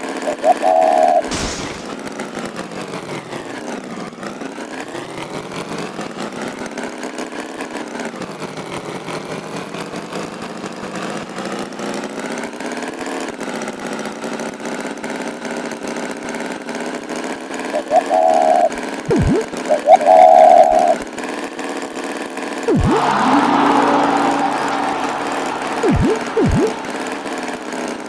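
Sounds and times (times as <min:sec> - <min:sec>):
tractor engine running: 0:22.7 - 0:28.0.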